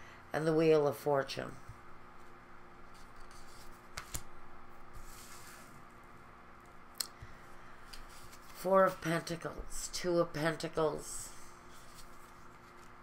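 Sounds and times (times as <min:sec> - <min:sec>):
cards sliding rustle: 0:02.2 - 0:04.3, 0:04.9 - 0:05.9, 0:07.8 - 0:08.7, 0:11.6 - 0:13.0.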